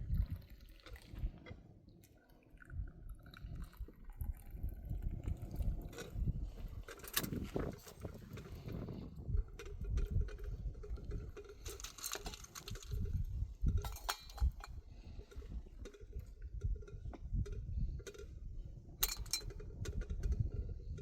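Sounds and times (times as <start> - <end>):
knocks and clinks: 9.7 - 16.2, 19.0 - 20.1.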